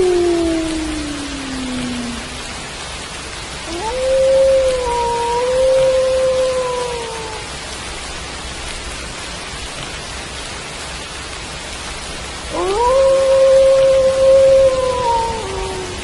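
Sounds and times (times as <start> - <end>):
wolf howl: 0.0 - 2.4, 3.6 - 7.5, 12.5 - 16.0
rain hissing: 0.0 - 16.0.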